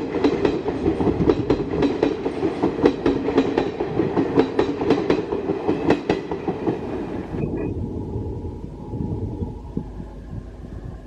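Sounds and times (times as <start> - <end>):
train wheels clattering: 0.0 - 7.1
low train rumble: 0.0 - 11.0.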